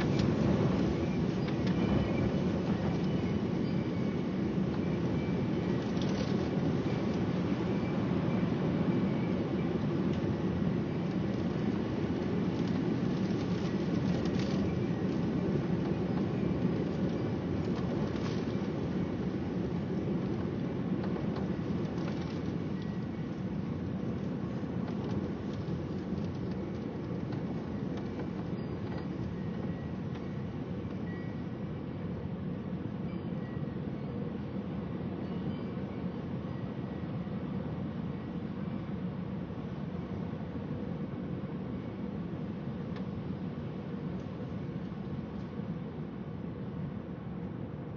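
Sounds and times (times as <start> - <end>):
low rumbling storm: 0.0 - 31.0.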